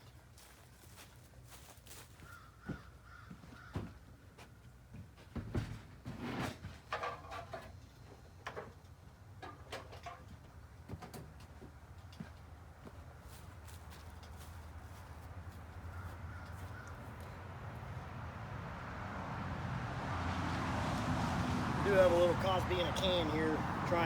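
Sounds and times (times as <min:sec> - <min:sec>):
crows cawing: 0:02.2 - 0:03.9, 0:15.9 - 0:17.2.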